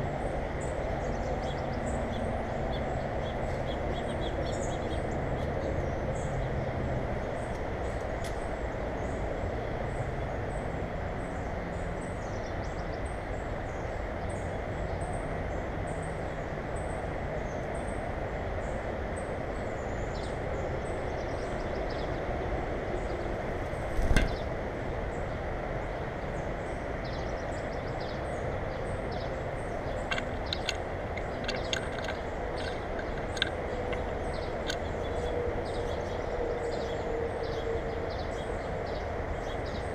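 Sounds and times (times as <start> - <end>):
low rumbling background noise: 0.0 - 39.9
small birds chirping: 19.6 - 25.3, 26.2 - 39.9
light clicks: 30.1 - 35.2.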